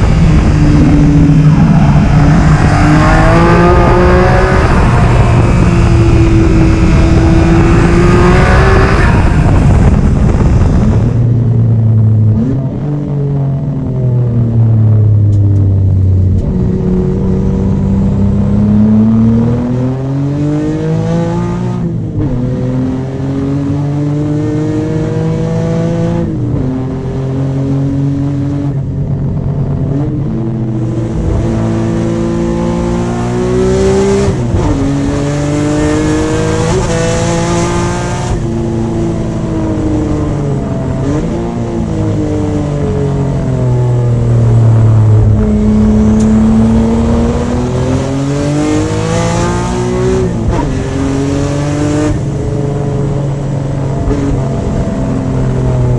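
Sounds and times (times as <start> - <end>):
car engine revving hard: 0.0 - 11.1, 30.7 - 55.9.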